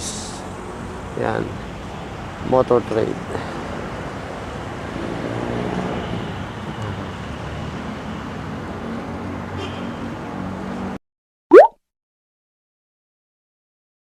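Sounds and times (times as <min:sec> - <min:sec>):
highway traffic rumble: 0:00.0 - 0:11.0.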